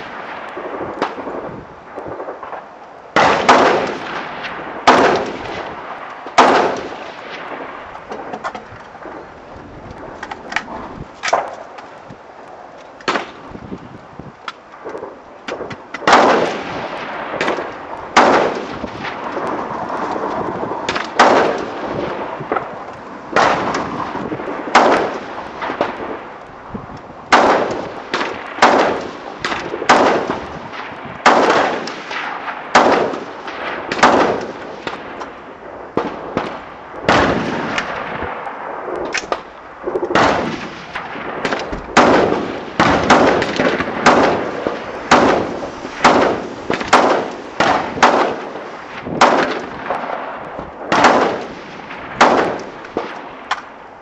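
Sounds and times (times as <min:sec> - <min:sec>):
rifle shots with echo: 0:00.0 - 0:09.3, 0:13.1 - 0:13.5, 0:14.8 - 0:26.3, 0:27.3 - 0:53.8
faint gunshots: 0:02.2 - 0:09.2, 0:15.0 - 0:20.0, 0:20.8 - 0:22.7, 0:23.3 - 0:26.2, 0:27.3 - 0:35.2, 0:39.1 - 0:53.7.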